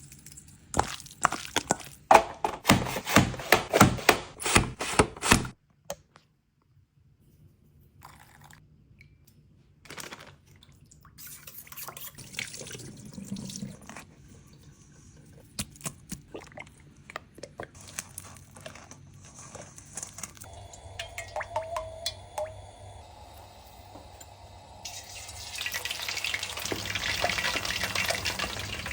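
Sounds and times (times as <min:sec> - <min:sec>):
water running from a tap: 0:20.4 - 0:28.9.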